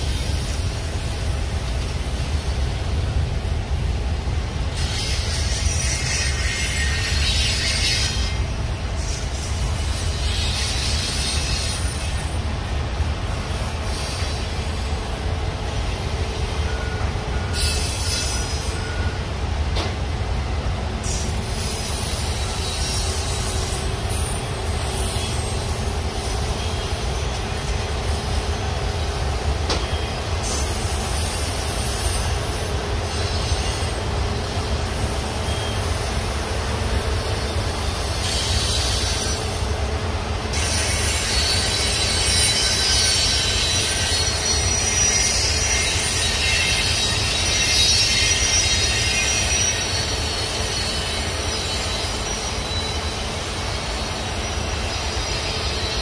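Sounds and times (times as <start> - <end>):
steel wheels rumbling on rail: 0.0 - 56.0
high-pitched wheel screech: 40.5 - 53.2.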